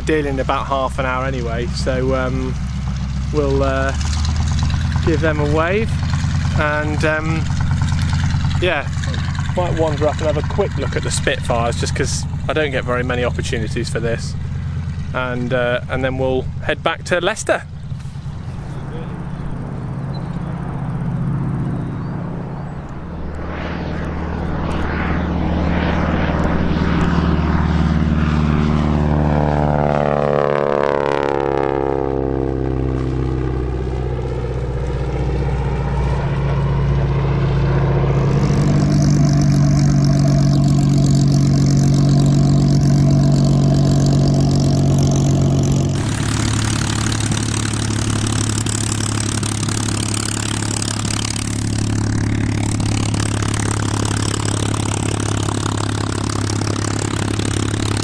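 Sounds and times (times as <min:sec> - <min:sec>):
lower steady drone: 0:00.0 - 0:58.0
propeller aircraft engine: 0:00.0 - 0:58.0.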